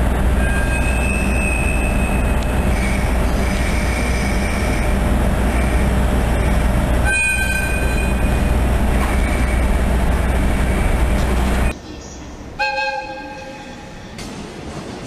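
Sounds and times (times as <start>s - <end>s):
train carriages rumbling past: 0.0s - 15.0s
two-tone train horn blast: 0.4s - 4.9s, 7.0s - 8.5s, 12.6s - 13.9s.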